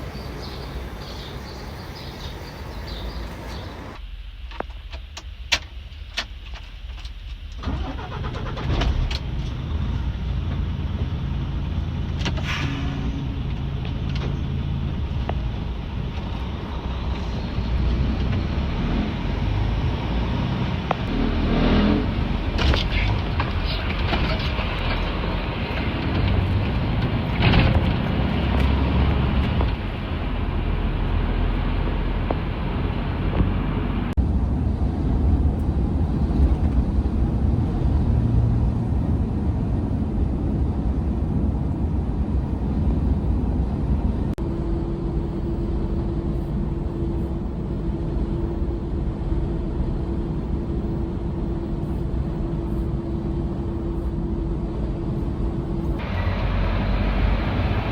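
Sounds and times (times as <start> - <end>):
steady hum tone: 0.0 - 4.4, 44.3 - 57.9
truck engine and road noise: 0.0 - 4.6, 5.2 - 57.9.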